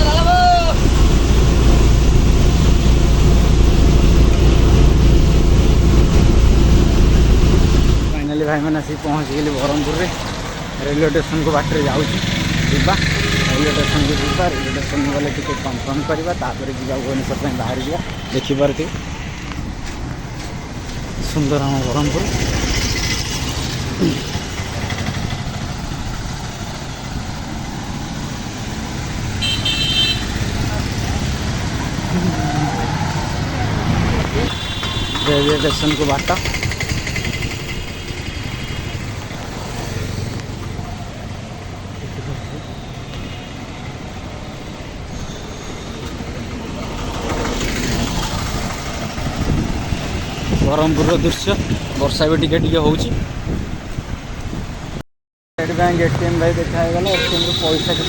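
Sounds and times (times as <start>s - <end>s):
wind rushing: 0.0s - 8.3s, 47.7s - 55.0s
deep vehicle rumble: 0.0s - 18.3s, 30.2s - 35.0s
road noise: 0.0s - 55.0s, 55.6s - 58.0s.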